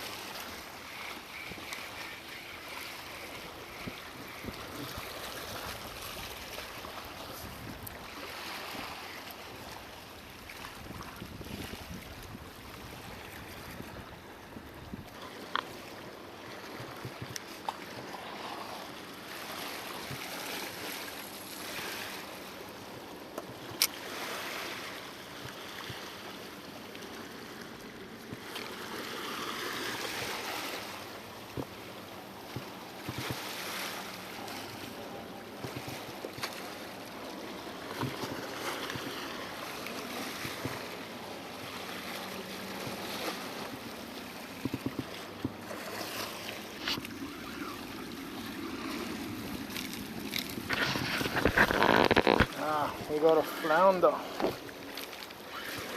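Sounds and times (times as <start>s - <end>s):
sea washing against rocks: 0.0s - 14.1s, 32.4s - 55.9s.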